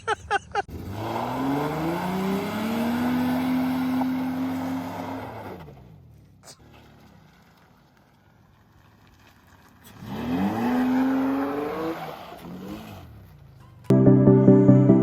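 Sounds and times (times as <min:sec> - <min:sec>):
pickup engine revving: 0:00.7 - 0:05.6.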